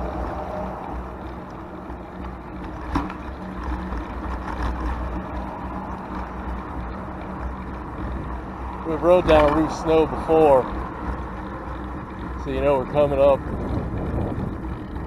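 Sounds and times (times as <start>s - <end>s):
traffic rumble: 0.0s - 15.0s
wind noise on microphone: 13.1s - 15.0s.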